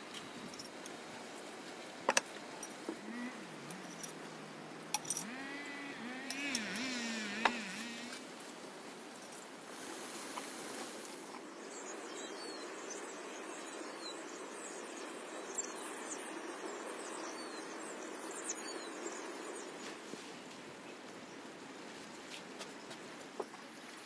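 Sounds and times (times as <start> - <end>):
birds chirping: 0.0 - 8.9.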